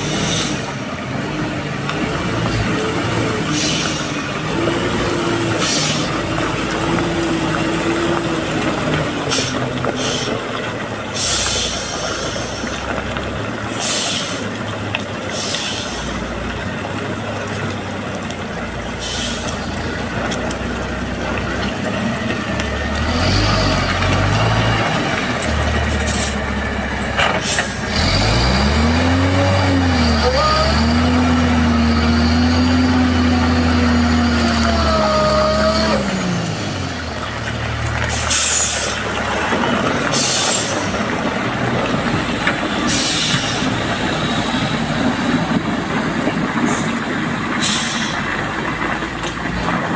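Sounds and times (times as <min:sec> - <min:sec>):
truck diesel engine labouring: 0:00.0 - 0:49.9
air brake hisses: 0:03.6 - 0:04.2, 0:05.6 - 0:06.1, 0:09.3 - 0:10.4, 0:11.2 - 0:12.8, 0:13.7 - 0:14.5, 0:15.3 - 0:16.2, 0:19.0 - 0:19.6, 0:27.4 - 0:27.8, 0:38.1 - 0:39.1, 0:40.0 - 0:41.0, 0:42.9 - 0:43.8, 0:47.6 - 0:48.3.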